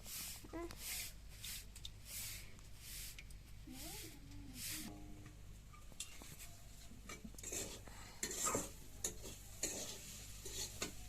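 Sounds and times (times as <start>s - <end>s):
utensil scraping metal pot: 7.1s - 11.0s.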